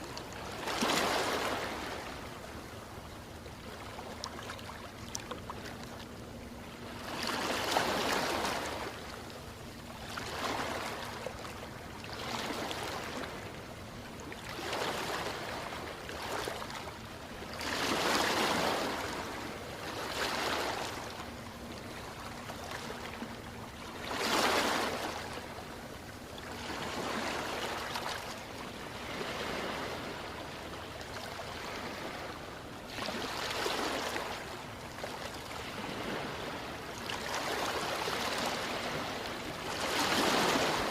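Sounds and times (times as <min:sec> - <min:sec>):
ocean waves surging: 0:37.4 - 0:40.9.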